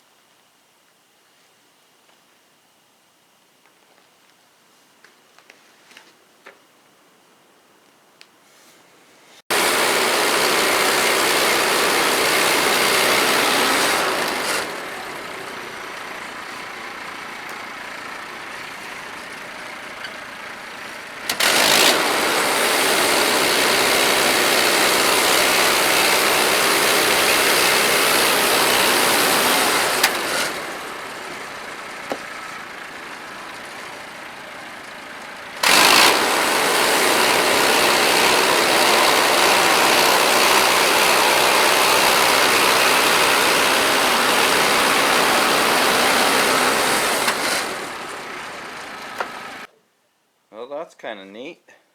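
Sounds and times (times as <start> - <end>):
sawmill gas engine running: 9.5 - 49.7.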